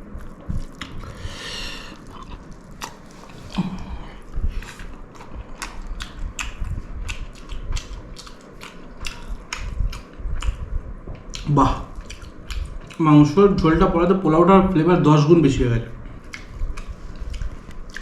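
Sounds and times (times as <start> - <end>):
person chewing food: 0.0 - 13.0, 16.1 - 18.0
wet mouth clicks and smacks: 16.3 - 18.0.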